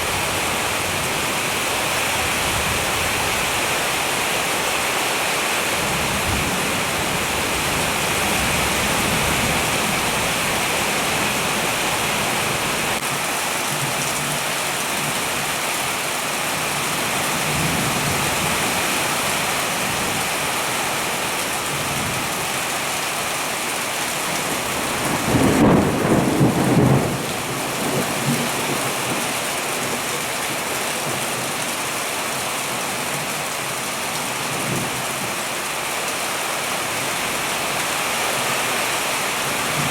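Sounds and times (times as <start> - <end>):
heavy rain: 0.0 - 39.9
thunder: 25.1 - 28.5.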